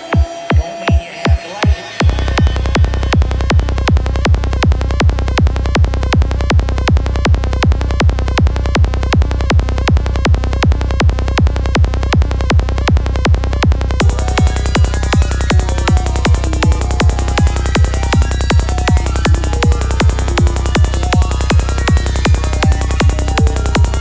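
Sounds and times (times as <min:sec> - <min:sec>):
high percussion and synth: 0:00.0 - 0:04.0, 0:14.0 - 0:24.0
trance kick drum: 0:00.0 - 0:24.0
sustained low bass: 0:02.0 - 0:24.0.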